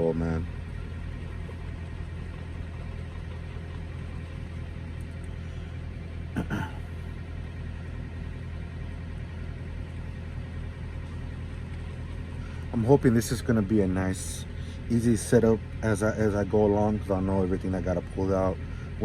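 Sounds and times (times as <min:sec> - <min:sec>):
truck engine idling: 0:00.0 - 0:19.0
throat clearing sound: 0:06.3 - 0:07.0.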